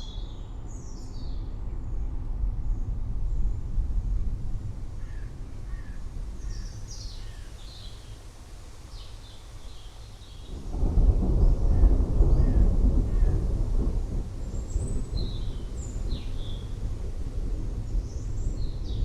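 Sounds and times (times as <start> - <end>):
thunder rumble: 2.0 - 7.6, 10.4 - 19.0.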